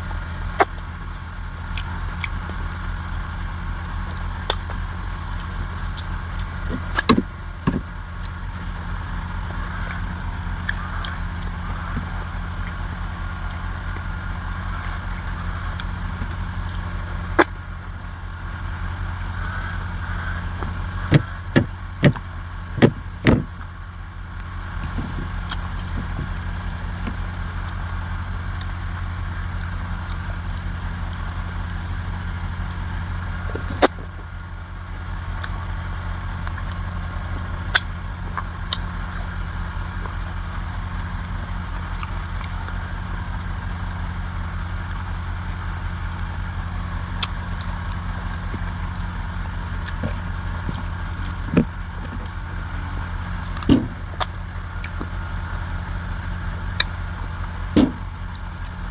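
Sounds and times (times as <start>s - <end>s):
low engine-like hum: 0.0s - 58.9s
sharp clicks and knocks: 6.7s - 8.4s, 20.4s - 23.7s, 49.8s - 52.4s, 53.4s - 55.1s, 57.8s - 58.5s.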